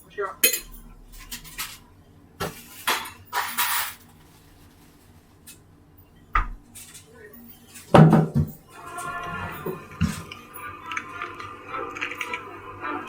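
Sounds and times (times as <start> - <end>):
household objects clattering: 2.4 - 5.6.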